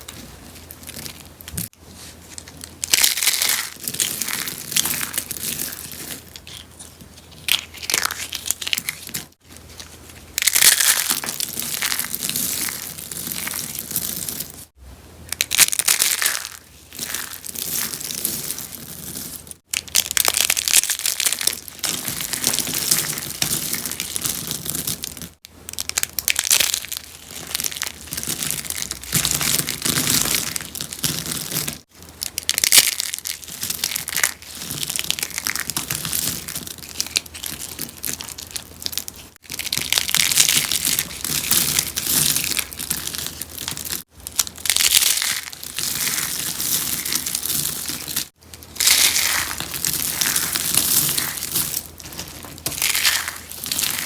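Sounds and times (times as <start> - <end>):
soap flowers crackling crunch: 0.0 - 54.0.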